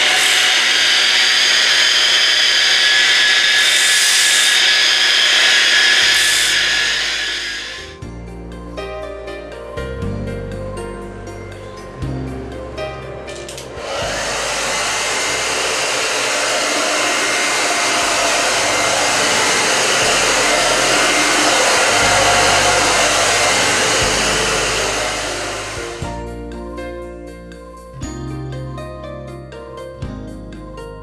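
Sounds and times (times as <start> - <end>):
grinder whirring on stone: 0.0 - 8.0, 13.8 - 26.1.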